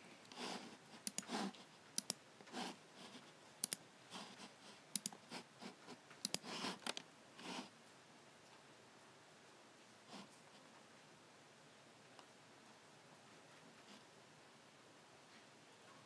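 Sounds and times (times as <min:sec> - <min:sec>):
soft rubbing sounds: 0:00.3 - 0:01.9
computer mouse clicking: 0:01.0 - 0:02.6, 0:03.6 - 0:03.8, 0:04.9 - 0:05.2, 0:06.2 - 0:07.0.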